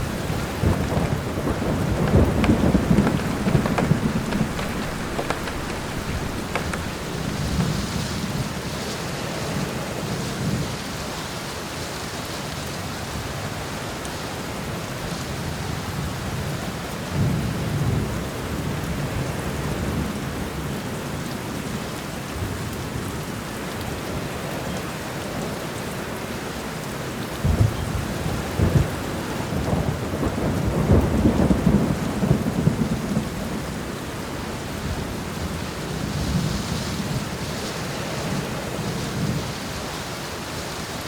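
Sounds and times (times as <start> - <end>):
low rolls of thunder: 0.0 - 8.8, 27.4 - 39.7
steady rain falling: 0.0 - 41.0.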